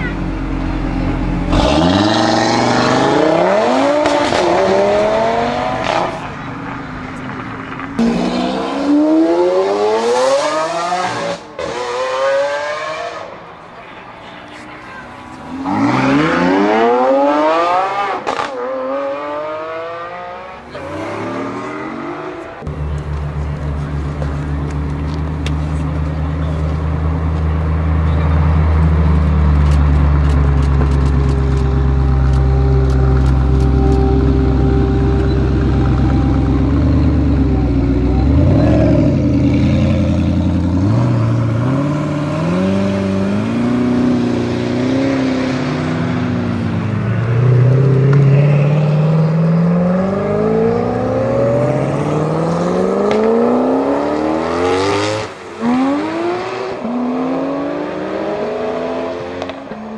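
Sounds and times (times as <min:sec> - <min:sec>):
car engine rumbling and revving: 0:00.0 - 0:13.6, 0:14.5 - 0:59.9.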